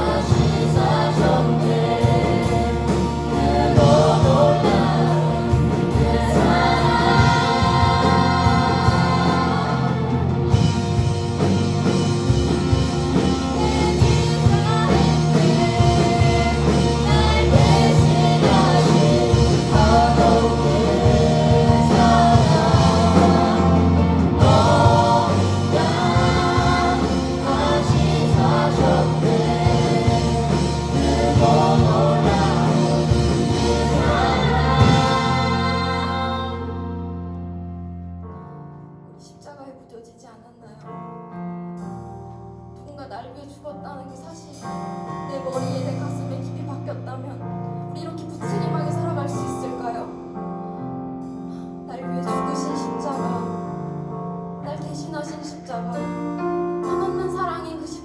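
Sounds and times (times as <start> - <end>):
choir singing: 0.0 - 37.4
instrumental accompaniment: 0.0 - 39.0.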